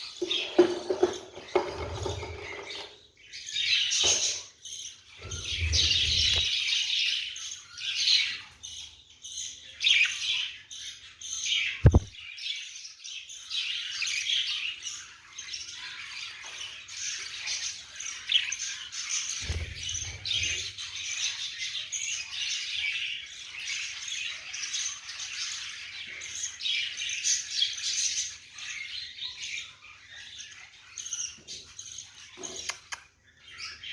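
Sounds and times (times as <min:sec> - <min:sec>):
budgerigars chirping: 0:09.6 - 0:12.1.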